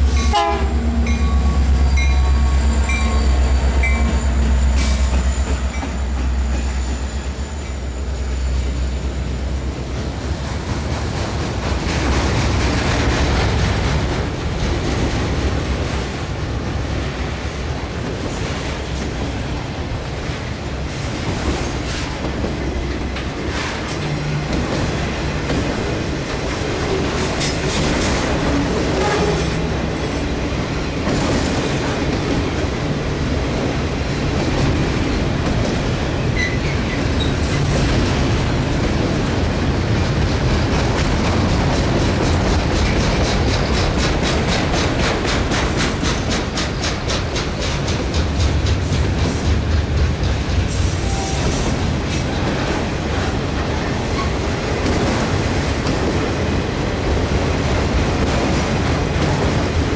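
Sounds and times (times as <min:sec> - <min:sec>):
steel wheels rumbling on rail: 0:00.0 - 0:59.9
clickety-clack over rail joints: 0:00.1 - 0:07.8, 0:09.6 - 0:59.9.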